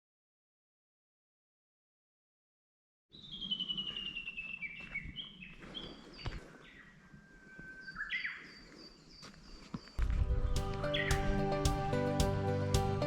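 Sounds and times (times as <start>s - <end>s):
songbird whistling: 3.1s - 8.6s, 10.8s - 12.4s.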